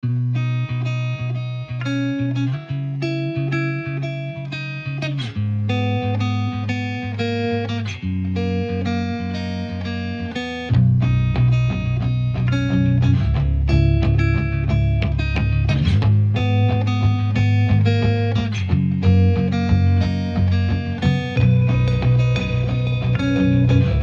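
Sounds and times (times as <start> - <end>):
plucked guitar-like melody: 0.0 - 24.0
low held bass line: 10.7 - 24.0.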